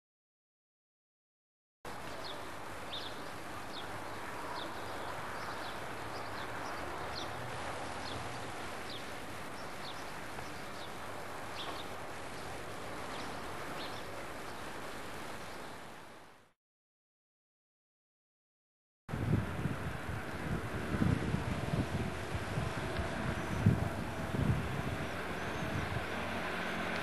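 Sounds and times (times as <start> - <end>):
outdoor background hiss: 1.9 - 16.6, 19.1 - 27.0
small birds chirping: 2.0 - 16.0, 25.2 - 27.0.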